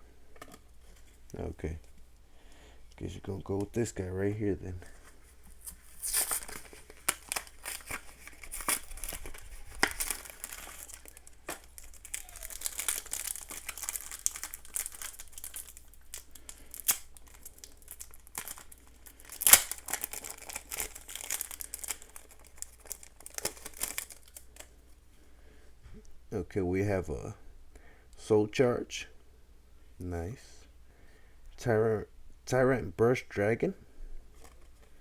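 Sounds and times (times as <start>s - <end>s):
foil pack crinkling and tearing: 4.9s - 24.8s.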